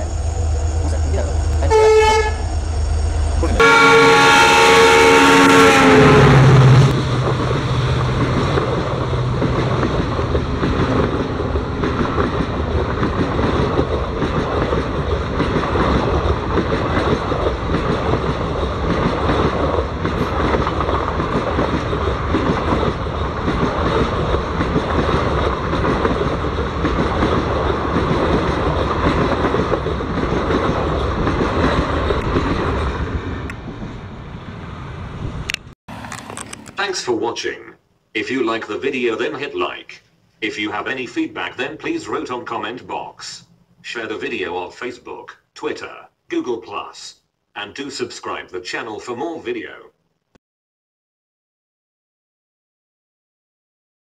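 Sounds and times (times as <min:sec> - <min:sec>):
train rumble: 0:00.0 - 0:46.9
train horn: 0:01.6 - 0:02.5, 0:03.4 - 0:07.0
wheels clattering over rail joints: 0:06.9 - 0:33.4.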